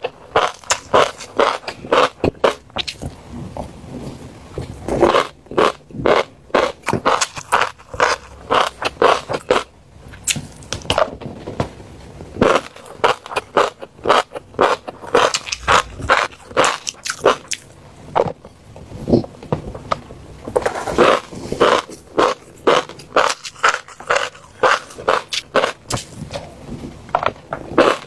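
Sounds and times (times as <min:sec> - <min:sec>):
fish roe popping while chewed: 0:04.9 - 0:09.7, 0:12.4 - 0:17.7, 0:21.6 - 0:26.2.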